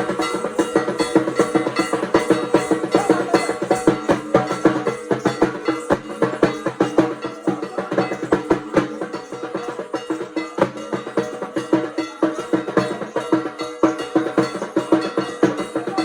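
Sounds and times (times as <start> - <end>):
rapid drum strokes: 0.0 - 16.0
steady ringing tones: 0.0 - 16.0.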